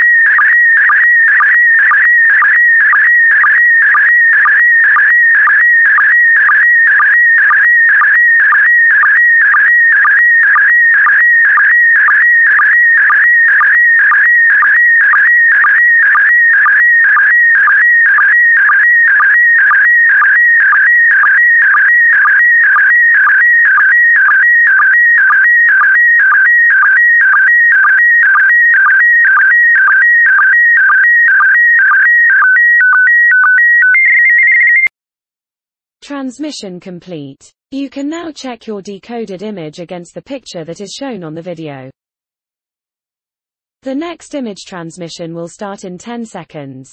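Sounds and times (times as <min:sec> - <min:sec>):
warbling high data tones: 0:00.0 - 0:34.9.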